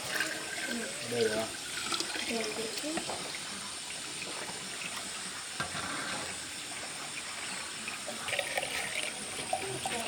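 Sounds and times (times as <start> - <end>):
tap water filling container: 0.0 - 10.0.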